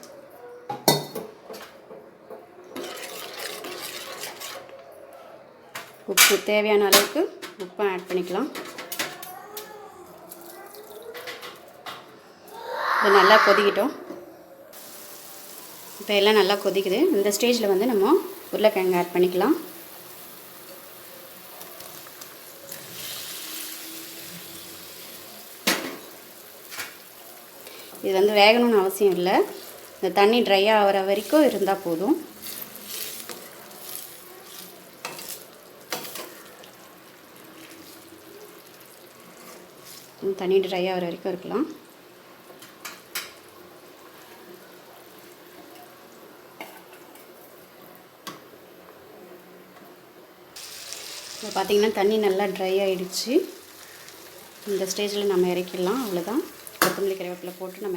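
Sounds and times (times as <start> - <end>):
water simmering in a pan: 14.8 - 40.2, 50.6 - 57.9.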